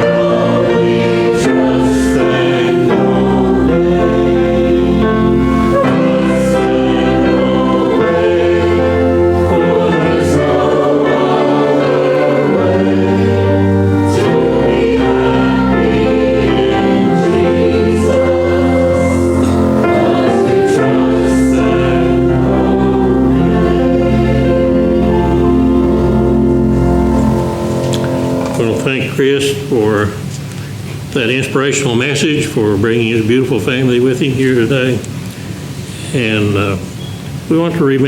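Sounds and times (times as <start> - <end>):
instrumental accompaniment with bass: 0.0 - 29.1
gospel choir singing: 0.0 - 29.3.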